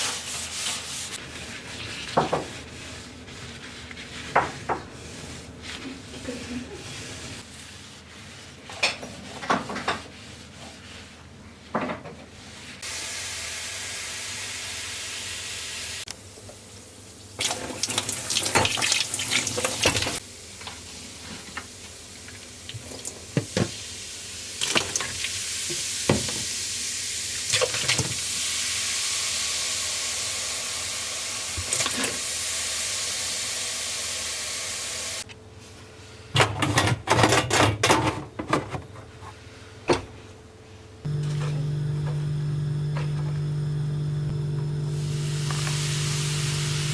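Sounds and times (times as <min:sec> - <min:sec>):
water tap running into sink: 0:17.4 - 0:20.2, 0:27.6 - 0:35.2, 0:45.0 - 0:46.9.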